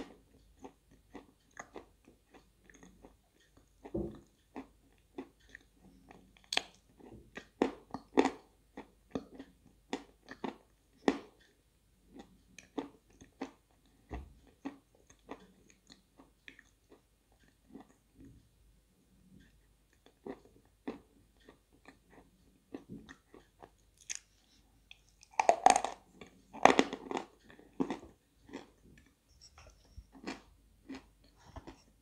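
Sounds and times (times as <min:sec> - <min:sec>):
chalk crunching while chewed: 0:20.0 - 0:31.9.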